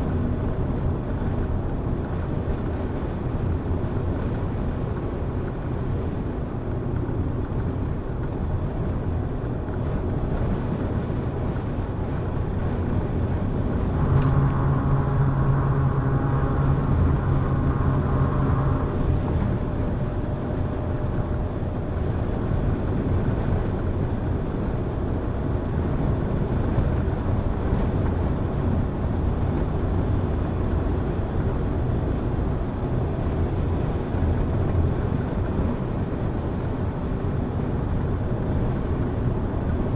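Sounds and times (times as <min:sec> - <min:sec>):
car engine and road noise: 0:00.0 - 0:39.9
engine whine: 0:00.0 - 0:39.9.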